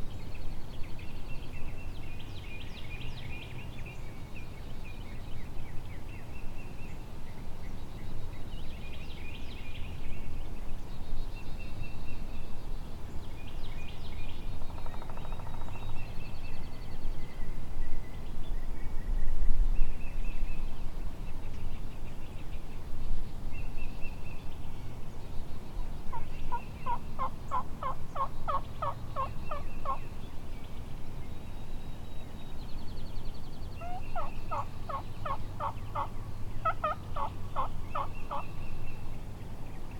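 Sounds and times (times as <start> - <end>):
songbirds chirping: 0.0 - 39.9
turkey yelps: 33.8 - 38.4.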